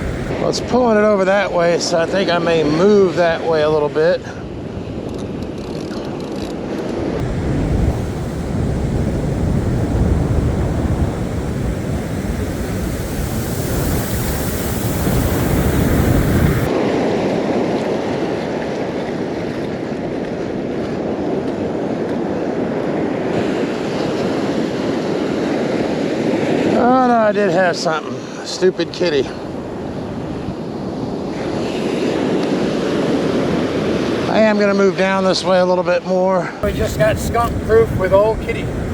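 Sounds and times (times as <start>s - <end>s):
waves washing on beach: 0.0s - 0.4s, 7.2s - 16.7s, 36.6s - 38.9s
wind buffeting microphone: 0.0s - 0.4s, 7.2s - 16.7s, 36.6s - 38.9s.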